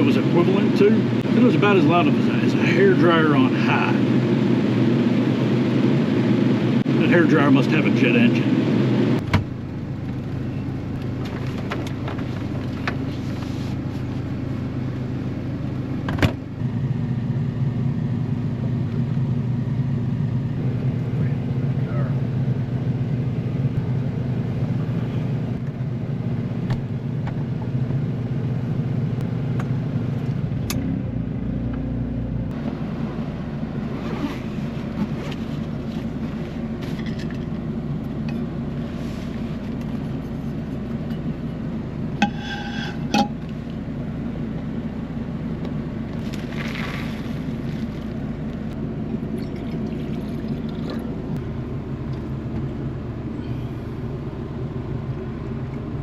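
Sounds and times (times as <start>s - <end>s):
generator running: 0.0s - 31.4s.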